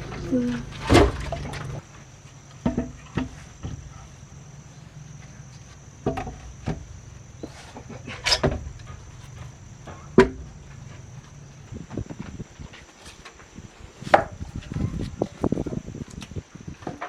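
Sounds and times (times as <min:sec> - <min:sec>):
wooden knocks and clunks: 0:00.0 - 0:04.2, 0:05.7 - 0:17.0
high-pitched insect drone: 0:00.0 - 0:17.0.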